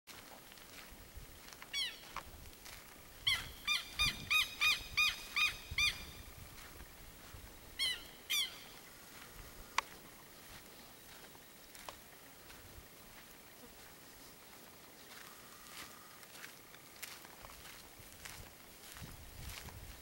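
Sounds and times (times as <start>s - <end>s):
bird calling: 1.7s - 2.2s, 3.2s - 6.4s, 7.7s - 11.4s.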